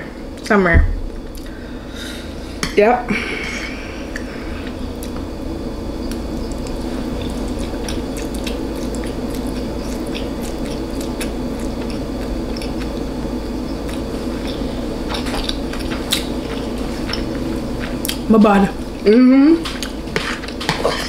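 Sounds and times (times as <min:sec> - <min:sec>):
person chewing food: 0:04.1 - 0:18.3, 0:19.6 - 0:21.0.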